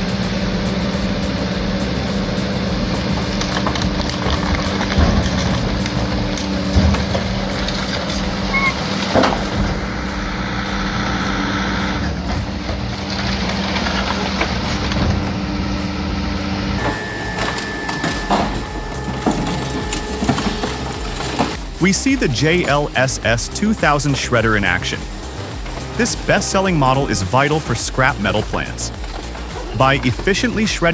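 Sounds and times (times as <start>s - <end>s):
crushing machinery low hum: 0.0s - 30.9s
machine high steady tone: 0.0s - 30.9s.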